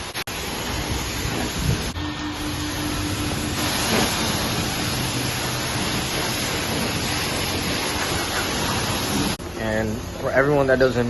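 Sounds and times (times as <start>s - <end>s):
water spray hitting a car: 0.0s - 9.4s.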